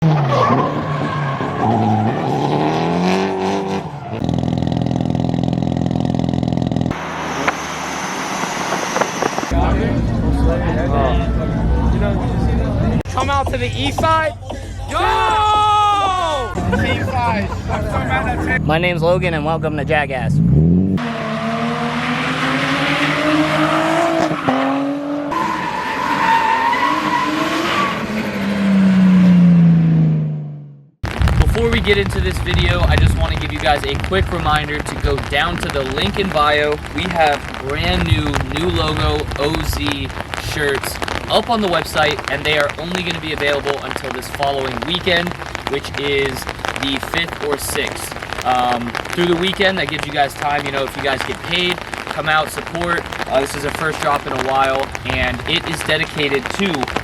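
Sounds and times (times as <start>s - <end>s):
car engines at high revs: 0.0s - 10.8s, 19.6s - 31.2s
car engine revving: 0.0s - 14.4s, 16.6s - 57.0s.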